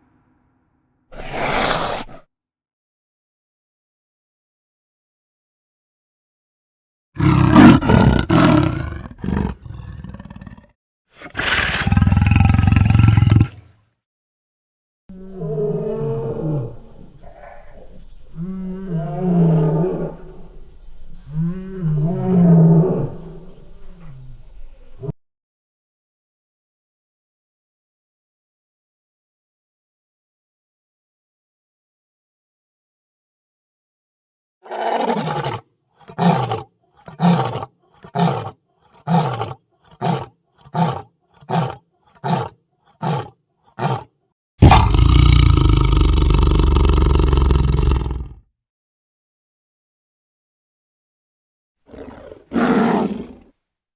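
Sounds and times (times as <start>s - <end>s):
big cat roaring: 1.2s - 2.2s, 7.2s - 13.6s, 34.6s - 48.4s, 51.9s - 53.5s.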